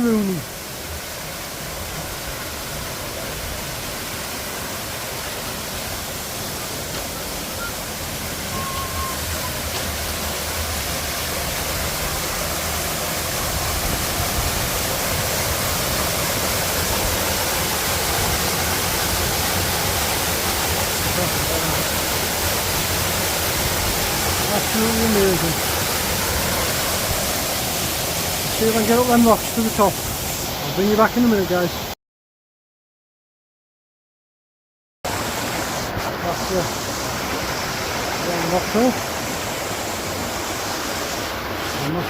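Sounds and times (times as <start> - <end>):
waterfall rushing: 0.0 - 31.9, 35.1 - 42.0.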